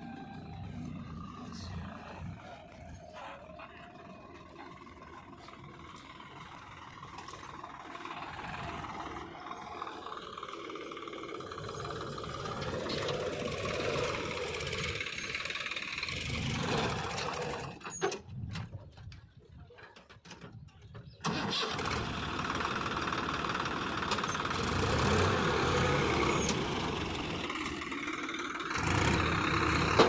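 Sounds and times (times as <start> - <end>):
diesel engine of heavy machinery: 0.0 - 30.0.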